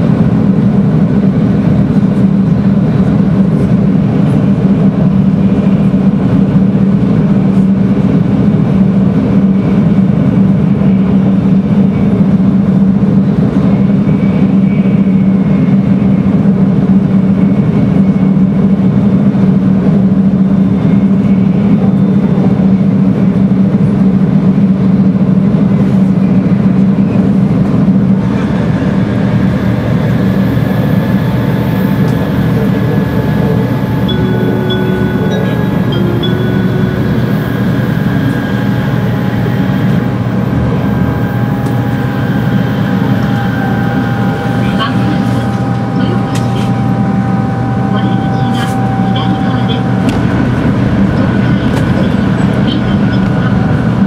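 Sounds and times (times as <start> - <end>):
train running rumble: 0.0 - 54.0
whining motor tones: 28.1 - 54.0.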